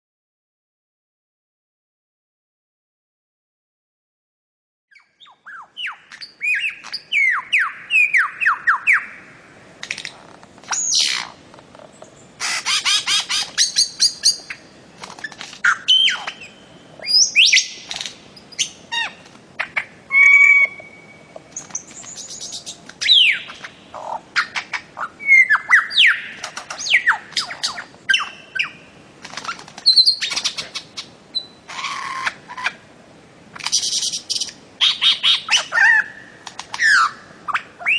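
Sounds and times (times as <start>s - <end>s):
bird squawks and calls: 4.9s - 9.2s, 10.7s - 11.4s, 12.4s - 14.6s, 15.2s - 28.8s, 29.4s - 32.8s, 33.6s - 37.9s
bird repeated chirps: 4.9s - 9.3s, 12.4s - 32.8s
bird whistled notes: 20.1s - 23.6s.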